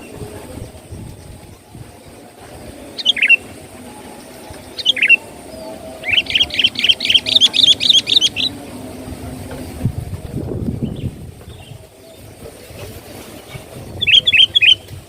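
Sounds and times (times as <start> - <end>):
bird chirping: 0.0 - 8.9, 13.4 - 15.0
low steady rumble: 0.0 - 15.0.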